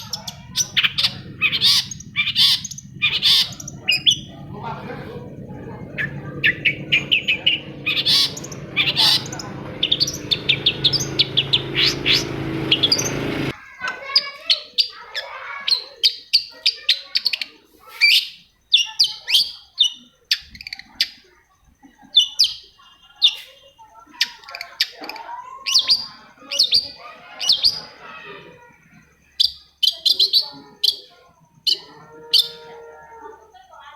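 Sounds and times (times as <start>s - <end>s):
low rumble: 0.3s - 13.5s
bird singing sharp chirps: 5.5s - 13.5s.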